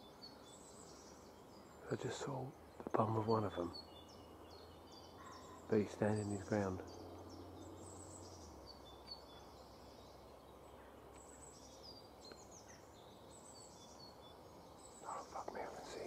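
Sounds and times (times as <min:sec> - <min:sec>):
faint birdsong: 0:00.0 - 0:16.0.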